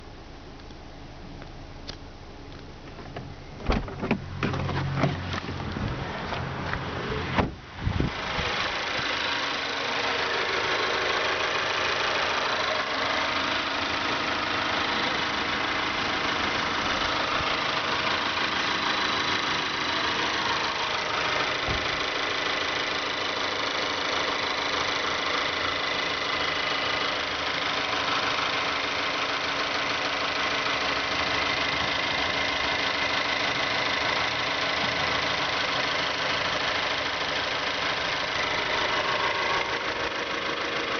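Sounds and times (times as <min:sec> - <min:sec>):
car engine idling with ticking: 0:00.0 - 0:40.9
sharp engine knocks: 0:02.9 - 0:07.6.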